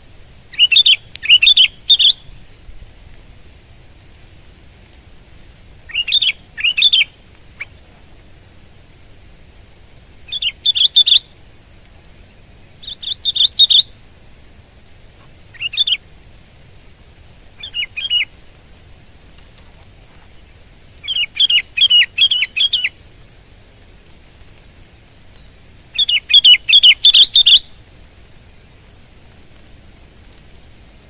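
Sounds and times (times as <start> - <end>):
bulbul singing: 0.5 - 2.7, 5.9 - 7.8, 10.3 - 11.3, 12.3 - 14.0, 15.5 - 16.0, 17.6 - 18.3, 21.0 - 23.8, 25.3 - 27.8.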